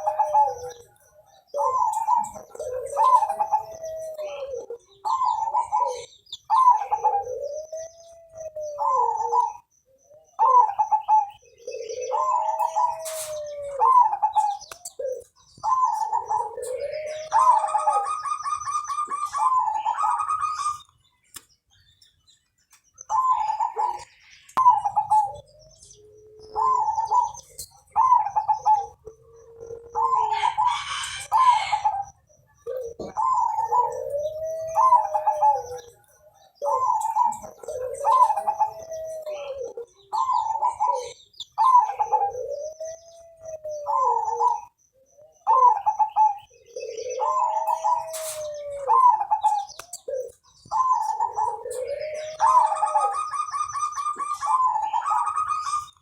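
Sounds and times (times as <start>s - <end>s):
dove cooing song: 0.0s - 56.0s
higher bird chirping: 0.0s - 56.0s.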